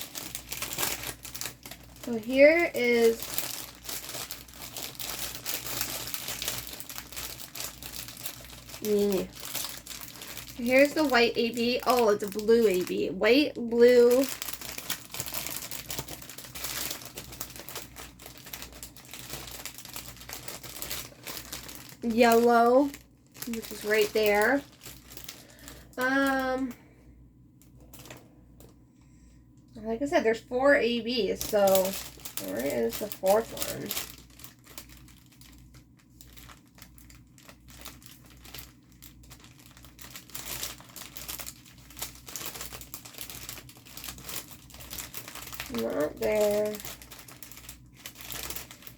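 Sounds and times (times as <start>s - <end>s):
plastic packets crinkling: 0.0s - 26.8s, 27.6s - 28.8s, 30.6s - 48.9s
faint low hum: 0.0s - 48.9s.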